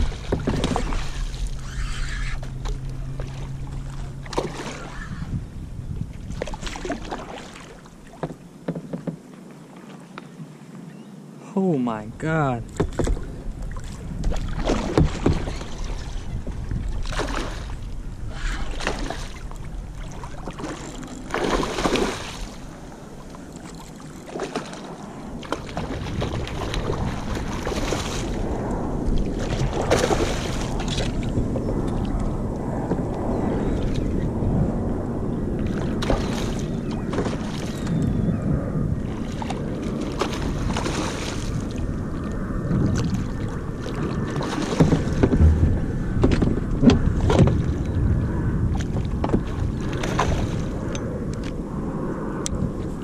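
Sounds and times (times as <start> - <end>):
steady wash of water: 0.0 - 5.3, 6.1 - 8.3, 11.6 - 32.5, 39.0 - 53.0
water splashing around kayak: 0.0 - 10.6, 11.6 - 34.2, 34.9 - 38.0, 38.9 - 53.0.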